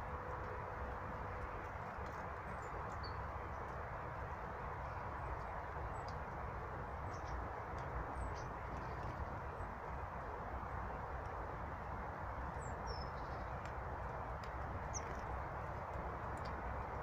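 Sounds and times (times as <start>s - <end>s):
background rumble and hiss: 0.0s - 17.0s
small birds chirping: 2.0s - 3.8s, 4.8s - 9.8s, 12.4s - 16.6s.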